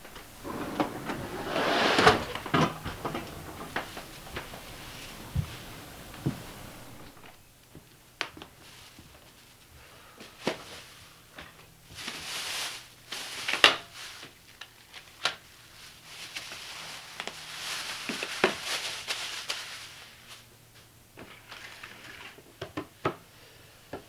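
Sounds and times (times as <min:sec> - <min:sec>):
rustling: 0:00.0 - 0:07.5, 0:11.9 - 0:21.9
faint steady hum: 0:00.0 - 0:24.0.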